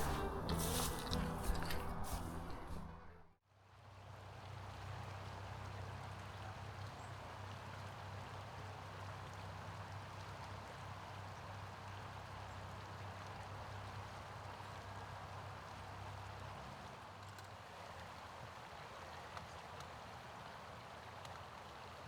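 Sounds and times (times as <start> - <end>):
low hum: 0.0 - 3.4.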